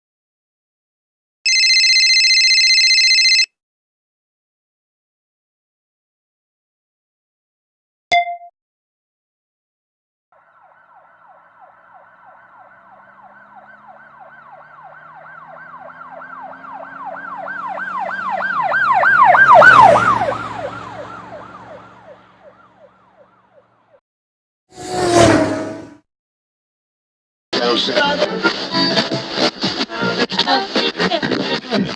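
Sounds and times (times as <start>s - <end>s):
siren yelping: 10.4s - 23.9s
low engine hum: 11.2s - 23.1s.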